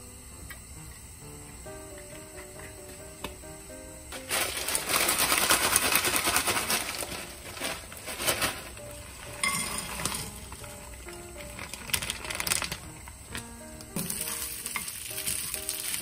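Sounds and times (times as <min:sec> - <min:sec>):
faint background music: 0:00.0 - 0:16.0
rice sizzling in pan: 0:00.0 - 0:16.0
crackle and clatter of small pieces: 0:04.1 - 0:13.4, 0:14.0 - 0:16.0
rice grains clattering onto pan: 0:04.2 - 0:12.9, 0:14.0 - 0:16.0.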